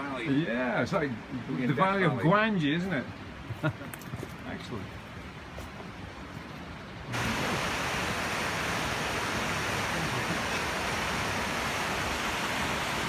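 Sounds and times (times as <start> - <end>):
river rapids rushing: 7.1 - 13.0.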